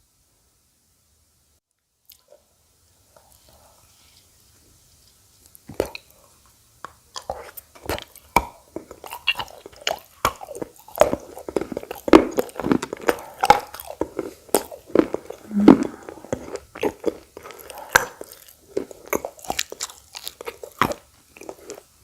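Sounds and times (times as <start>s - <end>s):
crunching and chewing clay: 6.9s - 22.0s.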